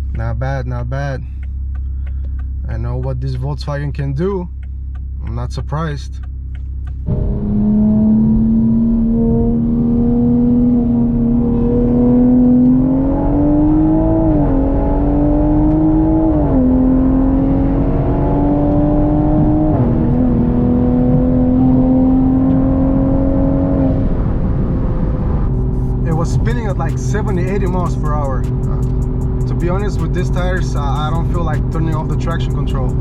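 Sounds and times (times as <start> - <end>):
turbocharged car engine revving: 0.0 - 33.0.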